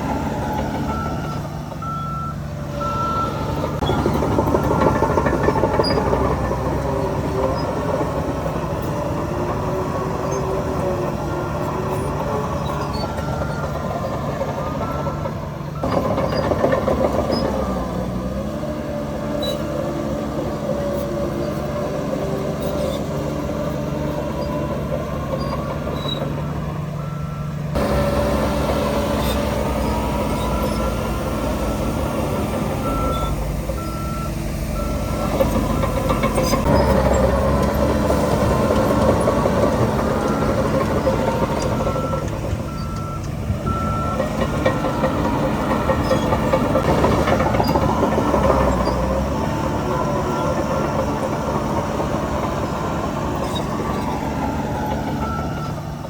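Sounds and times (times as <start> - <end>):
diesel engines running: 0.0 - 56.0
reversing alarm beeps: 0.8 - 5.0, 27.0 - 37.0, 39.5 - 46.6, 54.7 - 55.8.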